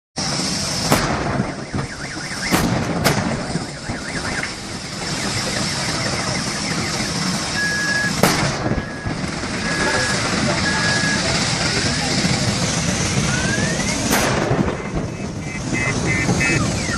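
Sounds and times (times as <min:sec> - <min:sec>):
fire roaring: 0:00.2 - 0:16.9
sharp pops: 0:00.8 - 0:07.4, 0:08.0 - 0:10.6, 0:14.0 - 0:16.4
wavering alarm tone: 0:01.4 - 0:02.6, 0:03.2 - 0:12.0, 0:13.3 - 0:14.0, 0:15.1 - 0:16.9.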